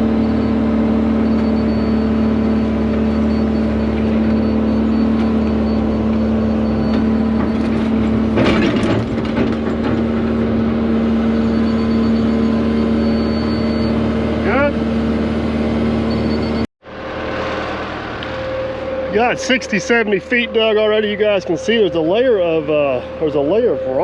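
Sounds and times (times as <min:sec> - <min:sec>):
excavator engine and hydraulics: 0:00.0 - 0:24.0
bucket clanking and scraping: 0:07.4 - 0:10.3.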